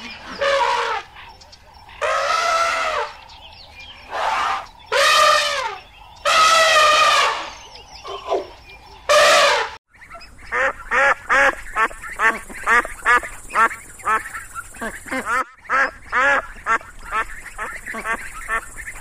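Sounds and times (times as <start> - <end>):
elephants trumpeting: 0.0 - 1.2, 2.0 - 3.2, 4.0 - 9.8
ducks quacking: 0.0 - 3.2, 4.1 - 19.0.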